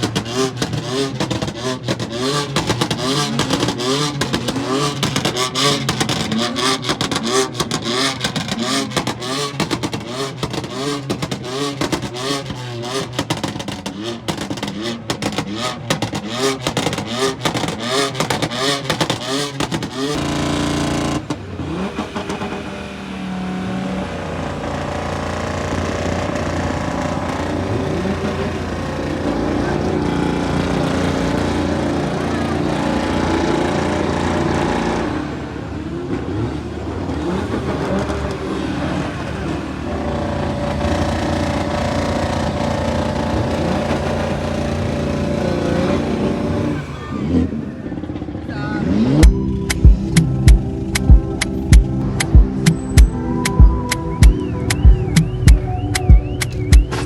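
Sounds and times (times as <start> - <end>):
car engine revving with crackling: 0.0 - 57.0
dull engine drone: 48.9 - 57.0.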